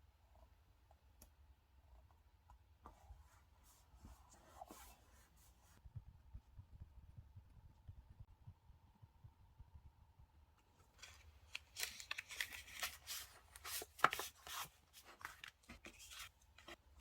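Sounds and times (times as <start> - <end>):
paper rustling and taps: 11.0 - 16.8.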